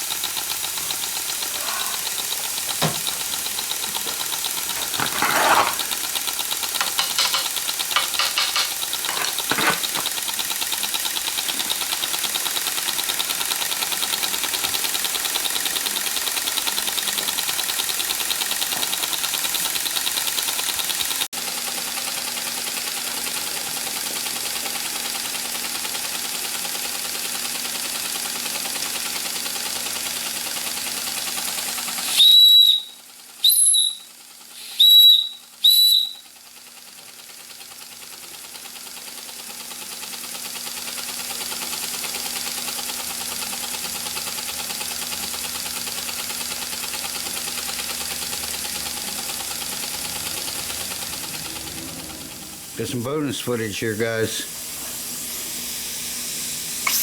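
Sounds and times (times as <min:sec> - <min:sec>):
steam engine running: 0:00.0 - 0:57.0
steam whistle toots: 0:32.0 - 0:36.4.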